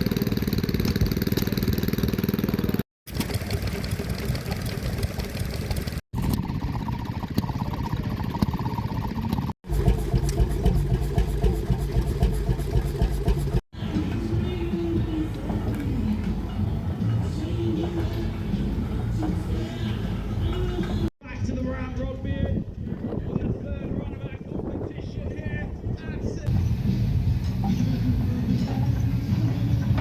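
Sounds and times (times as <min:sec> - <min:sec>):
diesel tractor engine under load: 0:00.0 - 0:21.1.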